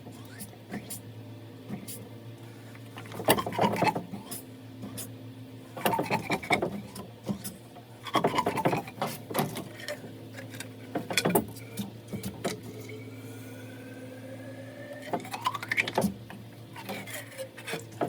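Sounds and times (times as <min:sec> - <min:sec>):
steady low hum: 0:00.0 - 0:18.0
scraping rubbing and clicking: 0:16.7 - 0:18.0.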